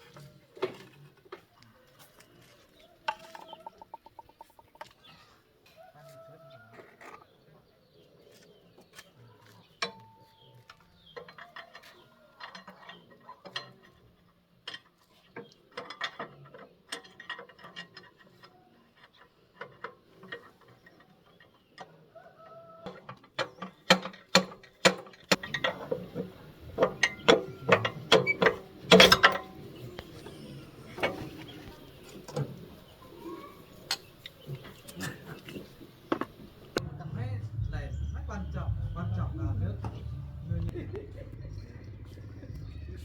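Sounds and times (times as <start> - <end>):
metal tools clinking: 25.3 - 36.6.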